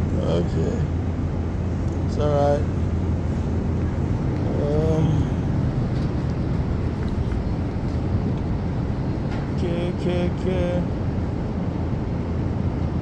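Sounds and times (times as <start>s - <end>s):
person's voice: 0.0s - 0.9s, 2.1s - 2.7s, 4.4s - 5.5s, 9.6s - 10.9s
low background rumble: 0.0s - 13.0s.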